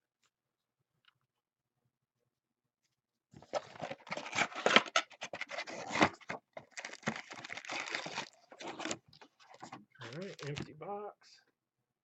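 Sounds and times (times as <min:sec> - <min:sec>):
packaging crinkling and tearing: 0:03.4 - 0:10.7.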